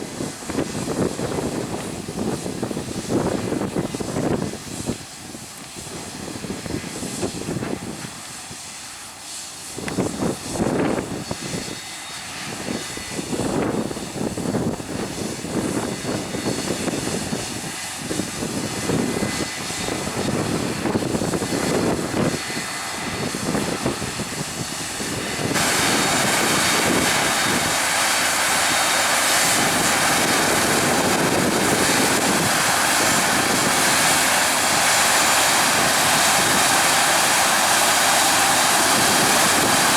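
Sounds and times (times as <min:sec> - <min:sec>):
diesel machinery droning: 0:18.4 - 0:39.9.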